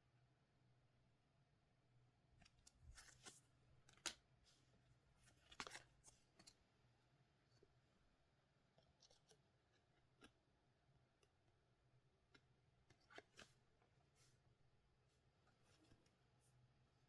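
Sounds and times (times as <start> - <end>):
card packs crinkling and rustling: 5.3 - 6.2.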